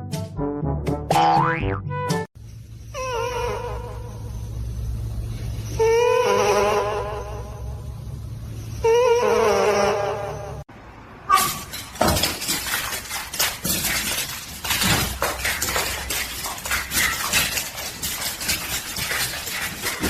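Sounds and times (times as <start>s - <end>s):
animal wavering cry: 2.9s - 4.4s, 5.6s - 7.9s, 8.7s - 10.6s
hard objects clattering and breaking: 11.4s - 20.0s.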